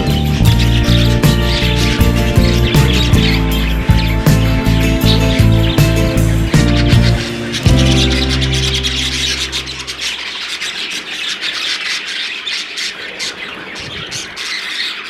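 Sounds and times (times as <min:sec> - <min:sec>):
background music: 0:00.0 - 0:10.4
budgerigars chattering: 0:00.0 - 0:15.0.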